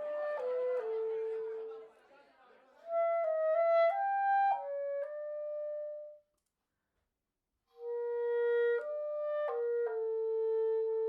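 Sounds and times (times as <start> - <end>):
solo woodwind melody: 0.0 - 1.8, 2.8 - 6.2, 7.8 - 11.0.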